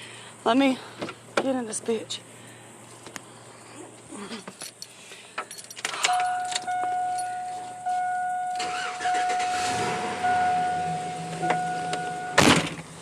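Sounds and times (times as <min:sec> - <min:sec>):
keys jangling: 0:04.5 - 0:08.5
in-cab warning chime: 0:06.0 - 0:12.6
truck engine cranking and starting: 0:08.1 - 0:13.0.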